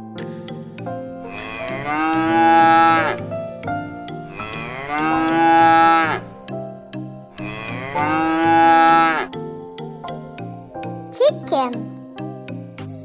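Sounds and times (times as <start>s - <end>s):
cow mooing: 1.2s - 3.2s, 4.3s - 6.3s, 7.4s - 9.3s.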